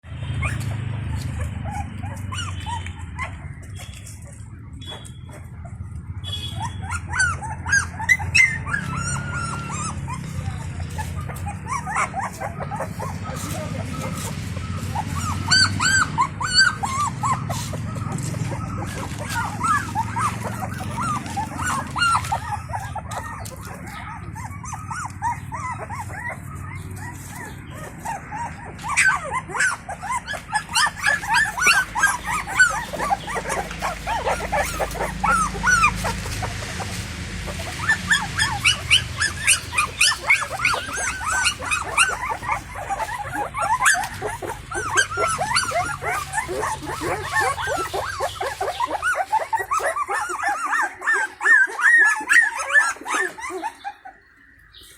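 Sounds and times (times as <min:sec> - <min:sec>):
puppies whimpering and squealing: 0:00.0 - 0:54.9.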